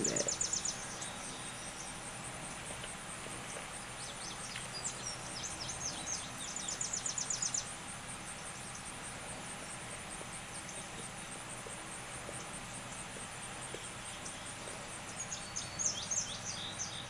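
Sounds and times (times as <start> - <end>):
small bird chirping and trilling: 0.0 - 1.9
high pulsing insect trill: 0.0 - 17.0.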